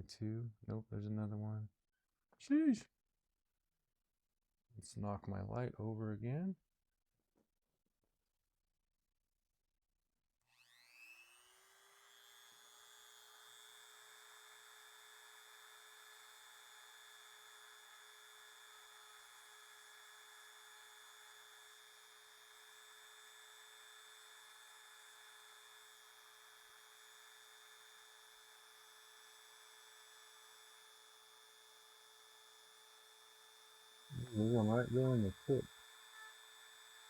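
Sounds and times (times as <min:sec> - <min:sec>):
rotary tool whining: 0:10.5 - 0:37.0.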